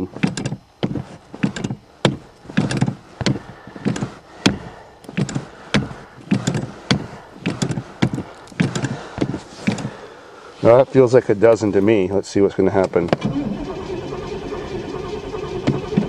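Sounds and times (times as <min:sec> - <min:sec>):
accelerator pedal knocks: 0:00.0 - 0:09.9.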